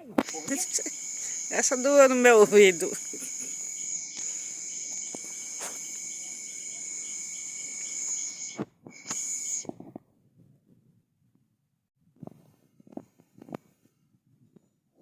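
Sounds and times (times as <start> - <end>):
crickets trilling: 0.0 - 9.7
fast pulsing chirp: 0.1 - 9.7
sharp clicks: 7.1 - 9.6.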